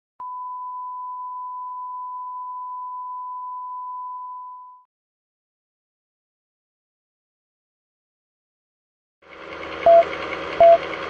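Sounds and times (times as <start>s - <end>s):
electronic beep tone: 9.9s - 10.8s.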